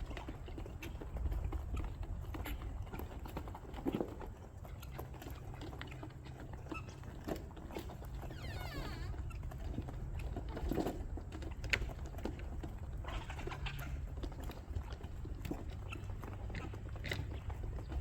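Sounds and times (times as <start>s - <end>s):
low steady rumble: 6.2s - 18.0s.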